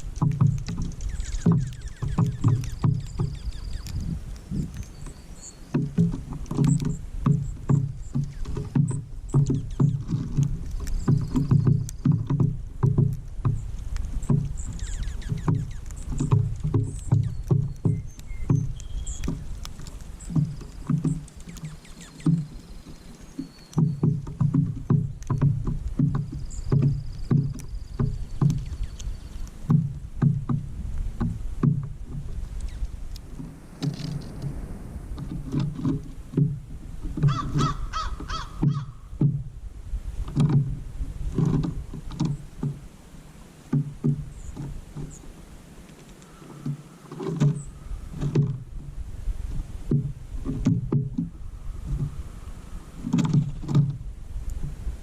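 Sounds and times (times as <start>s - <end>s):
birds pecking with hollow knocks: 0.0s - 54.9s
faint high bird chirps: 0.9s - 5.7s, 14.2s - 19.5s, 20.2s - 24.2s
low thumps: 5.7s - 39.6s
bird giving harsh calls: 37.2s - 39.1s.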